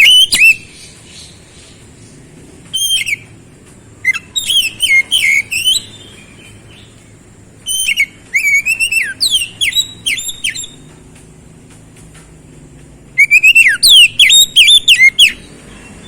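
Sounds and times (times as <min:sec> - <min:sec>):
songbird whistling song: 0:00.0 - 0:11.0, 0:13.1 - 0:16.0.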